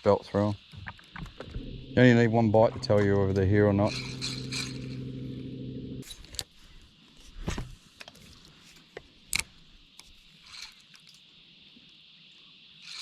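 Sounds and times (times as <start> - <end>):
motor hum: 1.2 - 6.0.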